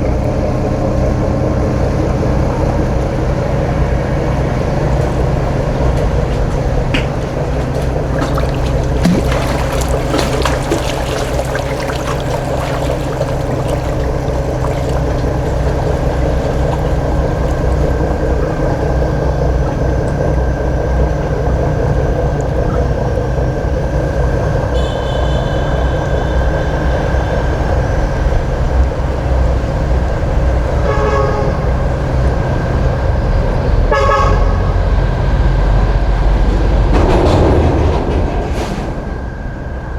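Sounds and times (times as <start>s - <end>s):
boat engine droning: 0.0s - 39.9s
short horn toots: 24.8s - 26.9s.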